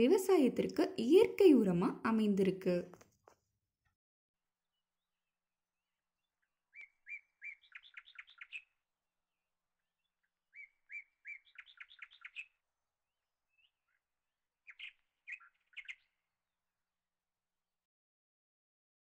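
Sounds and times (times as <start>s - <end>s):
songbird singing: 6.4s - 8.8s, 10.0s - 12.6s, 13.5s - 16.2s.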